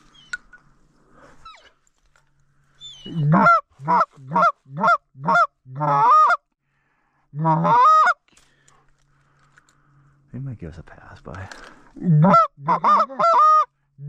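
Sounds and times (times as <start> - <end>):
goose call honks: 3.1 - 6.4, 12.1 - 13.7.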